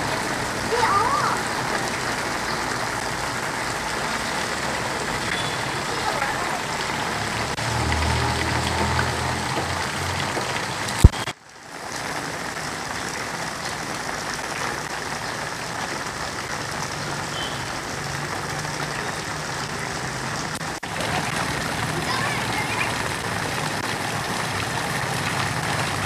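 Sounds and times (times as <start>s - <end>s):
rain on standing water: 0.0s - 26.0s.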